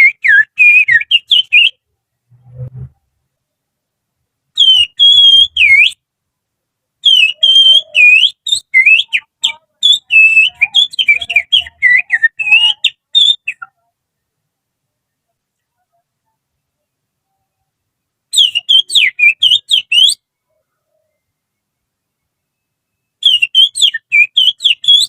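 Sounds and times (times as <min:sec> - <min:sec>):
finger whistling birdsong: 0:00.0 - 0:01.8, 0:04.6 - 0:06.0, 0:07.1 - 0:13.8, 0:18.4 - 0:20.2, 0:23.1 - 0:25.0.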